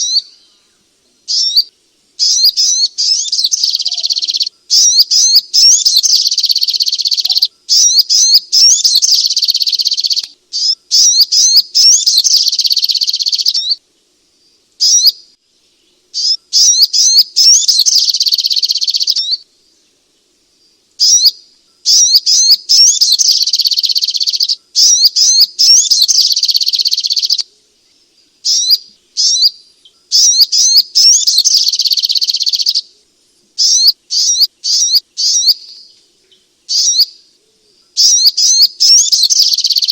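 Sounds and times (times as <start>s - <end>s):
bird singing rapid high notes: 1.3s - 13.8s, 16.2s - 19.4s, 21.0s - 27.4s, 28.4s - 32.8s, 33.6s - 35.9s, 36.7s - 37.2s, 38.0s - 39.9s.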